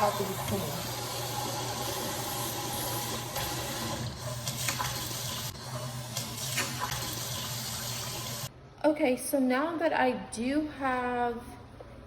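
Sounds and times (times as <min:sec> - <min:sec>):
kitchen tap running into sink: 0:00.0 - 0:08.5.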